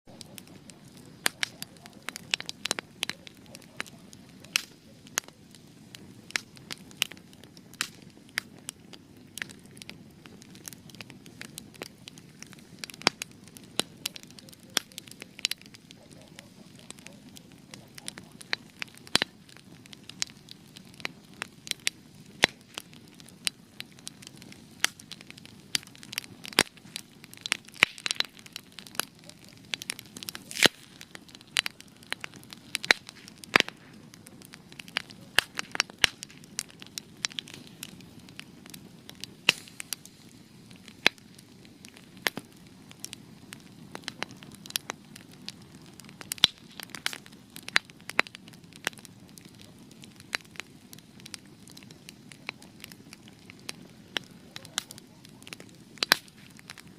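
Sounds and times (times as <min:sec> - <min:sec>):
fire crackling and popping: 0:00.0 - 0:56.9
soft rush of flame: 0:00.1 - 0:56.9.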